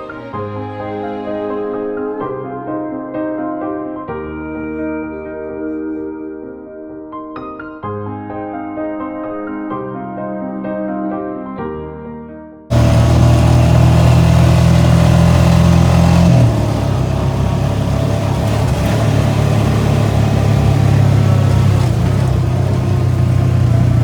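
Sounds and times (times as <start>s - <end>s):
atv engine running: 12.7s - 24.0s.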